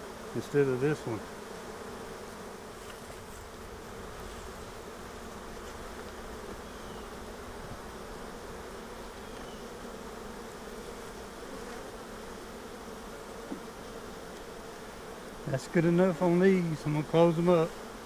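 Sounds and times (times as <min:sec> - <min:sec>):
bees buzzing: 0:00.0 - 0:18.0.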